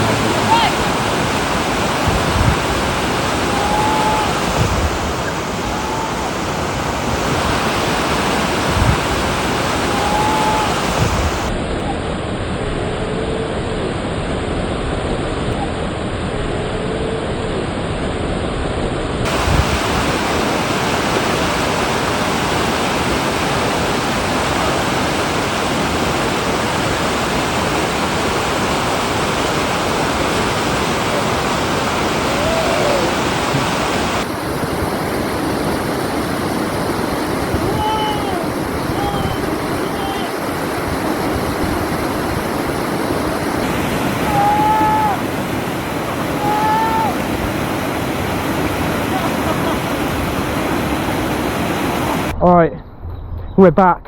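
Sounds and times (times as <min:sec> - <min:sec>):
river water rushing over rapids: 0:00.0 - 0:12.4, 0:19.2 - 0:52.4
dull low knocks: 0:04.5 - 0:05.3.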